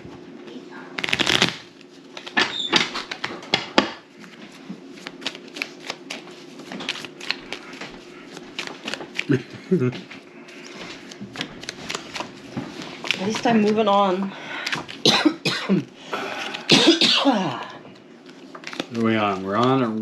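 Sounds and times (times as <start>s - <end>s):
playing cards shuffling: 1.0s - 3.3s, 4.2s - 14.0s, 18.2s - 20.0s.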